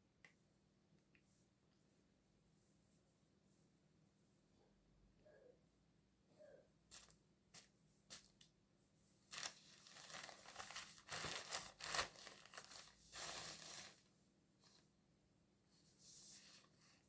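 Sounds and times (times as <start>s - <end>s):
crinkling and rustling: 9.3s - 14.8s.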